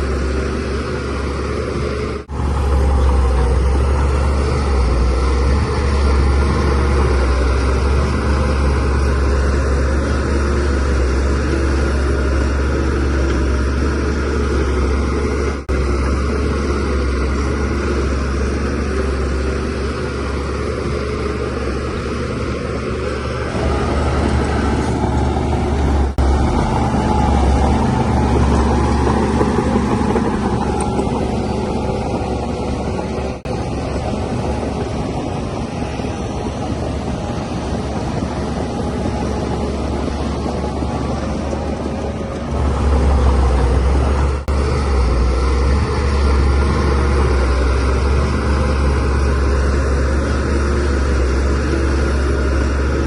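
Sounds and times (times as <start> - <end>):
bulldozer diesel engine running: 0.0 - 53.0.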